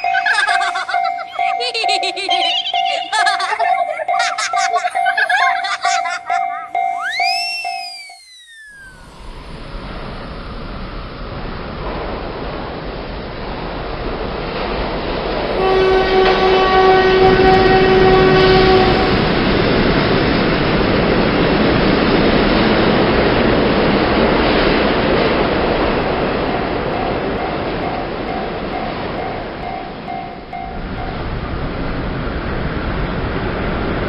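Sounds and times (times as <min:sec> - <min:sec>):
train running: 0:00.0 - 0:34.0
train horn blast: 0:15.4 - 0:19.8.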